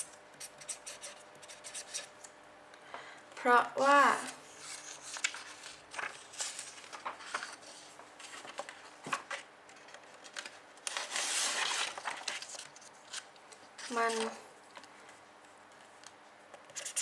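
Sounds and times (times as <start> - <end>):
pen scratching on paper: 0.4 - 2.0, 16.7 - 17.0.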